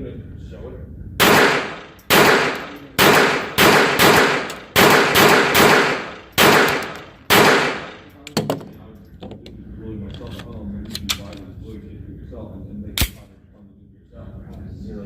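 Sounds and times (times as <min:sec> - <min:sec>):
pistol shots with echo: 0:01.2 - 0:08.1.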